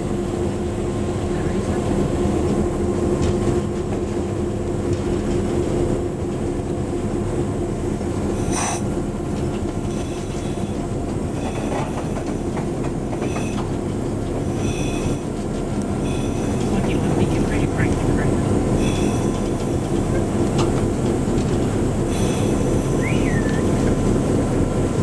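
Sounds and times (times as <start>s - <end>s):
rail and wheel noise: 0.0s - 25.0s
train engine drone: 0.0s - 25.0s.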